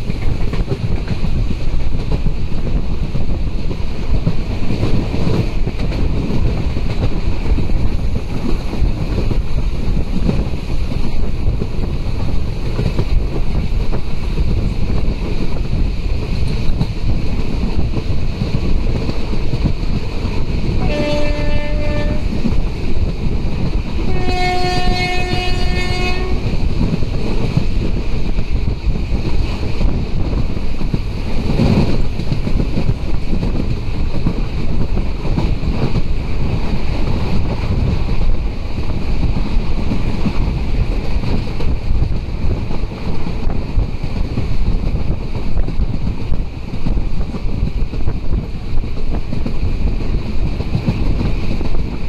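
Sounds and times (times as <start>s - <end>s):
train rumble and rushing air: 0.0s - 52.0s
train horn: 20.8s - 22.4s, 24.0s - 26.5s.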